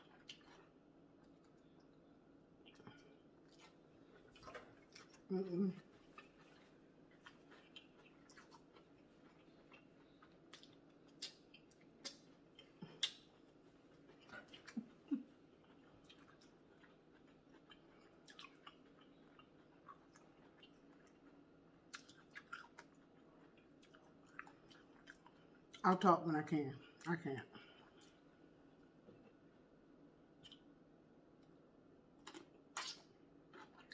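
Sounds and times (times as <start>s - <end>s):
chewing food: 0.0s - 25.9s, 26.9s - 28.4s, 32.2s - 33.9s
wet mouth clicks: 12.8s - 13.3s.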